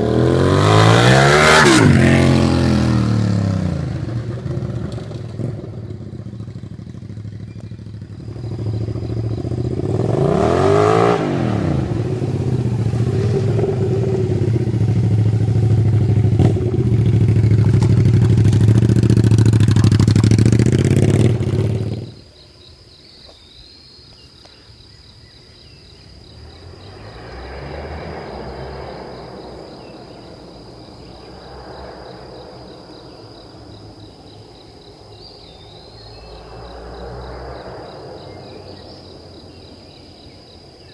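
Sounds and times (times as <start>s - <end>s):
loud motorcycle engine revving: 0.0s - 22.2s
crickets chirping: 0.0s - 40.9s.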